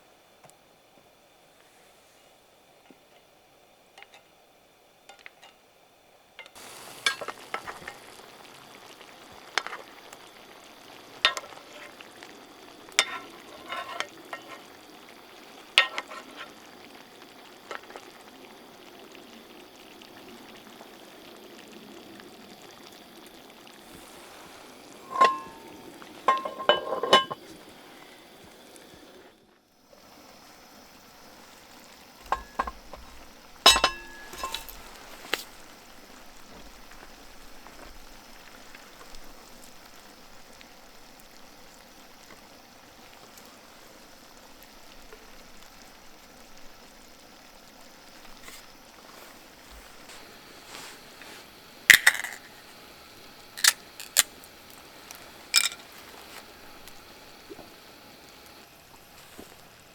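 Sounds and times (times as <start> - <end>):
food sizzling in a pan: 1.0 - 59.9
utensil clinking against pan: 25.0 - 27.4, 33.7 - 34.8, 55.6 - 55.8.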